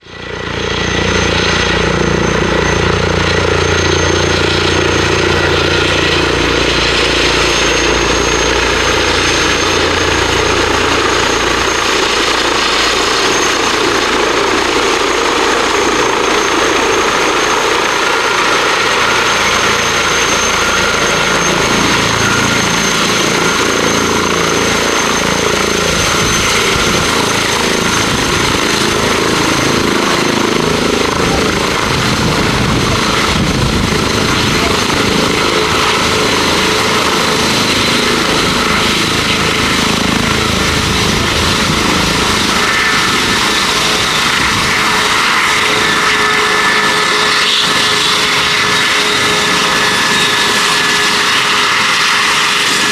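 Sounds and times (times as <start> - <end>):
helicopter turbine whine: 0.0 - 52.9
rotor rush: 8.2 - 47.2.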